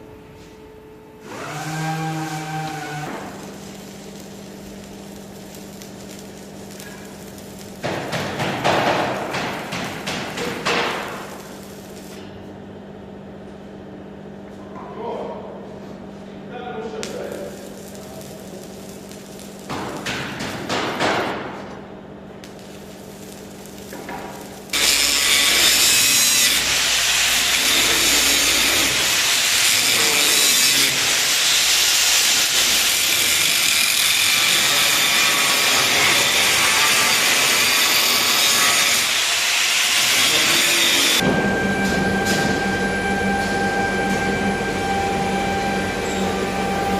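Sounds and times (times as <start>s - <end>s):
power tool grinding steel: 24.7s - 41.2s.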